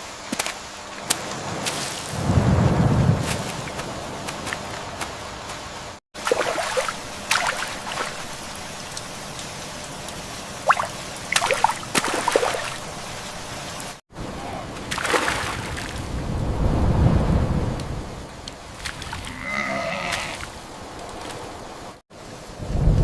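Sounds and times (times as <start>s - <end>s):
rain hissing: 0.0s - 14.8s, 15.6s - 23.0s
water trickling and sloshing: 6.2s - 14.0s, 18.4s - 19.3s.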